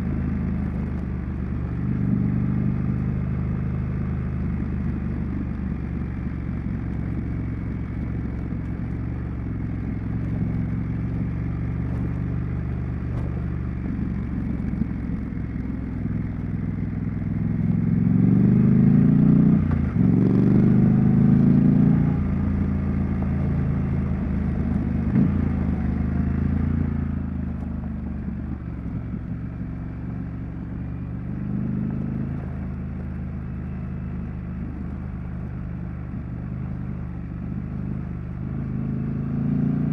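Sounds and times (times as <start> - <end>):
motorcycle engine and exhaust: 0.0 - 39.9
gear shift: 11.0 - 16.5.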